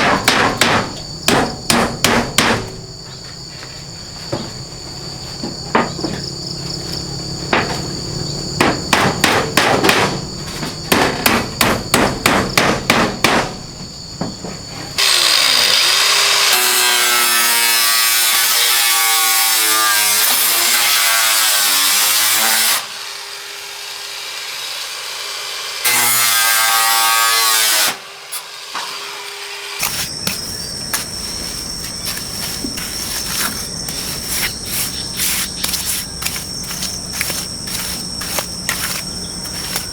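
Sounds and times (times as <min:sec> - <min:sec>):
crickets chirping: 0:00.0 - 0:25.0, 0:29.7 - 0:39.9
power saw cutting: 0:15.0 - 0:39.9.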